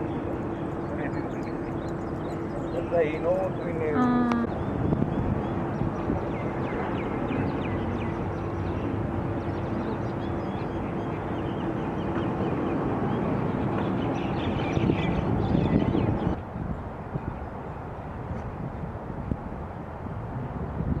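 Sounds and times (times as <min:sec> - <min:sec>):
small birds chirping: 0:00.0 - 0:16.4
low even hum: 0:00.0 - 0:20.5
noisy background rumble: 0:00.0 - 0:21.0.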